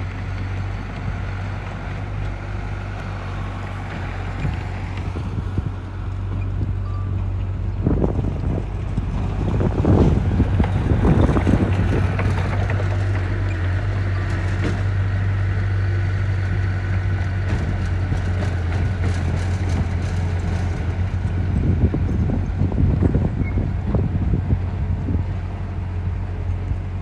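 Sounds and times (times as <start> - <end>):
diesel engine droning: 0.0 - 27.0.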